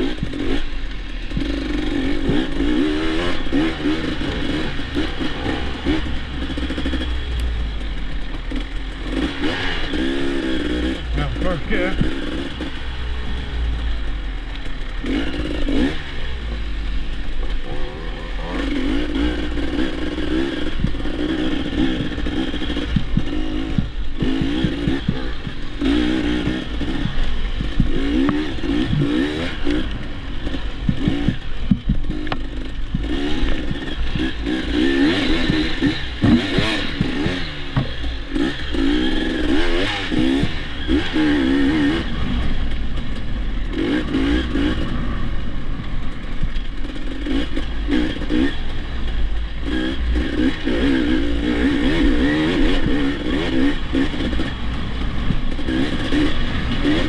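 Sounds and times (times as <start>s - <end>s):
dirt bike engine revving: 0.0s - 57.0s
wind rumble on microphone: 26.6s - 34.4s.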